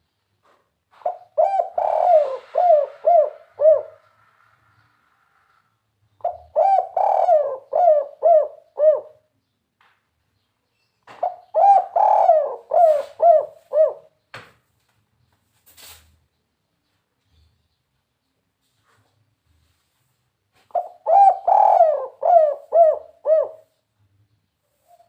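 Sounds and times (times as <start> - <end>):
dove cooing: 1.0 - 4.3, 6.2 - 9.3, 11.1 - 14.2, 20.7 - 23.8.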